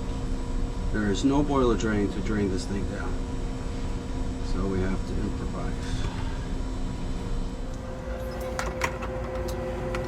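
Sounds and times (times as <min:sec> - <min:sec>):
mechanical hum: 0:00.0 - 0:10.0
steady tones: 0:07.5 - 0:10.0.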